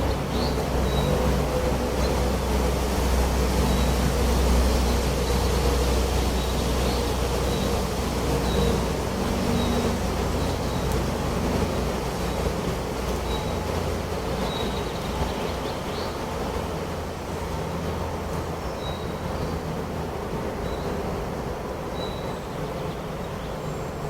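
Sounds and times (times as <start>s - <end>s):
wind blowing with low rumble: 0.0s - 24.0s.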